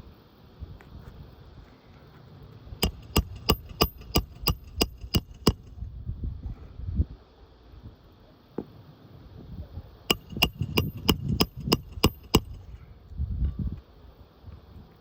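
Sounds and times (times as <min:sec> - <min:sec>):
hammer striking metal: 0:02.8 - 0:05.7, 0:10.1 - 0:12.6.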